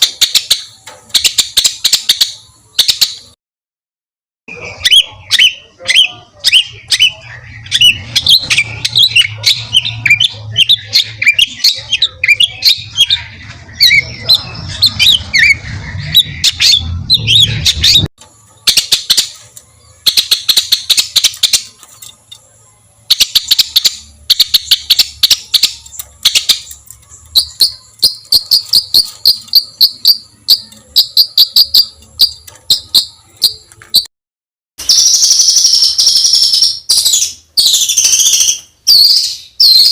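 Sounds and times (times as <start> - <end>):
songbird chattering song: 0.0 - 3.4, 4.5 - 34.1, 34.8 - 39.9.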